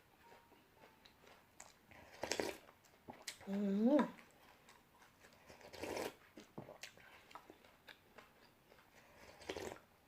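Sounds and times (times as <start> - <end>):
person chewing crunchy food: 0.3 - 9.9.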